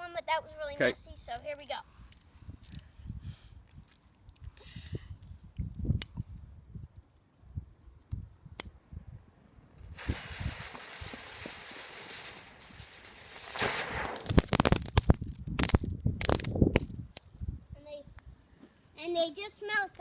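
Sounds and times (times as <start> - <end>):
firework fizzing hiss: 9.8 - 16.5
firework crackling pops: 9.8 - 17.4.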